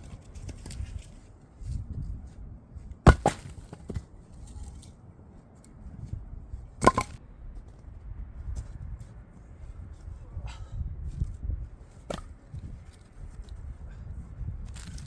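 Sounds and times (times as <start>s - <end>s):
firewood chunks knocking together: 3.0s - 4.1s, 6.8s - 7.2s.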